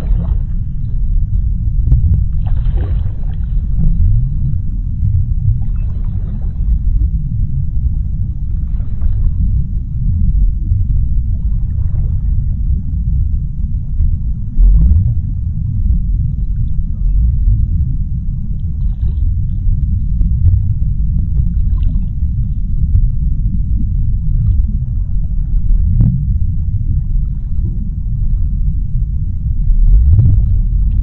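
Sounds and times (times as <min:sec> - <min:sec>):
faint high underwater sounds: 0:00.0 - 0:31.0
underwater deep rumble: 0:00.0 - 0:31.0.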